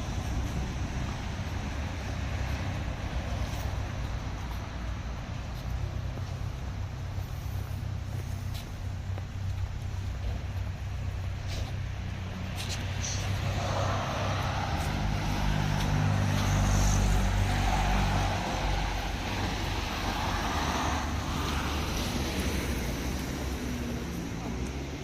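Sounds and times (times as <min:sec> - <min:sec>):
vehicle driving past: 0:12.2 - 0:25.0.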